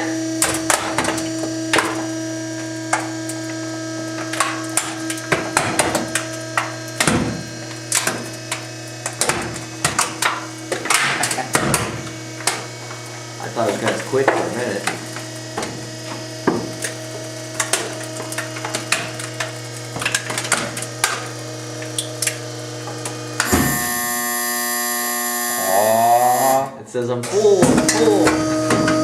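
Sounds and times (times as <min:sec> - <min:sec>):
electric motor humming: 0:00.0 - 0:29.0
loud buzzer: 0:00.0 - 0:29.0
casing cracking and snapping: 0:00.4 - 0:23.5.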